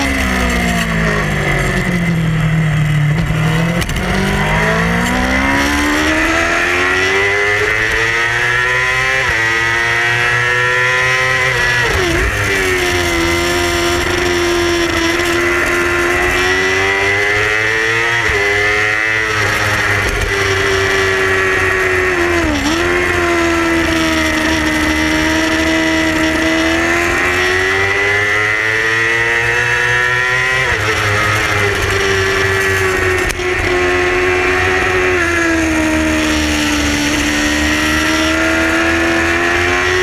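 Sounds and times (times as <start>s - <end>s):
motorcycle engine revving high: 0.0s - 40.0s.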